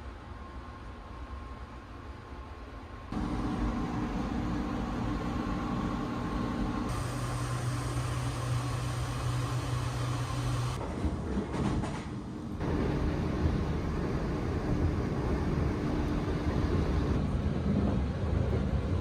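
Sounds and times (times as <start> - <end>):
train mechanical hum: 0.0 - 19.0
train rushing noise: 6.8 - 19.0.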